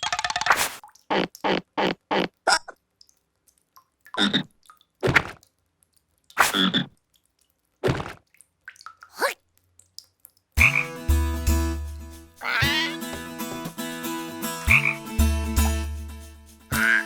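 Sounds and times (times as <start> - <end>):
cartoon character vocal calls: 9.2 - 9.4, 12.4 - 13.0, 16.7 - 17.0.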